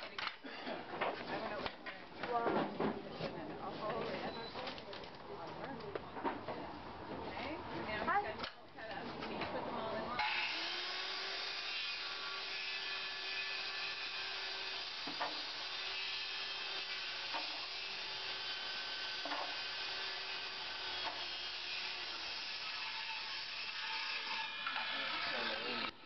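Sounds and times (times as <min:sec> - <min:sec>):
saw blade rasping in wood: 0:10.2 - 0:25.9.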